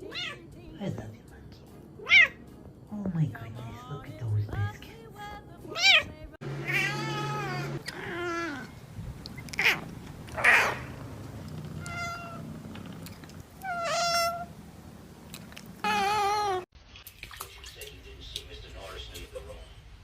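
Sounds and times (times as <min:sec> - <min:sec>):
cat meowing: 0:00.0 - 0:00.4, 0:02.0 - 0:02.5, 0:05.7 - 0:08.8, 0:09.4 - 0:11.0, 0:11.7 - 0:12.5, 0:13.6 - 0:14.5, 0:15.8 - 0:16.7.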